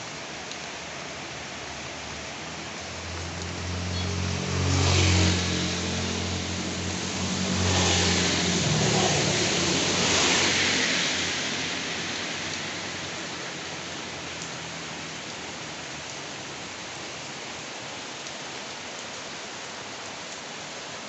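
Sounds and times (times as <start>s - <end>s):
heavy rain: 0.0s - 21.0s
tyres hissing through water: 0.9s - 17.8s
vehicle engine hum: 2.5s - 10.6s.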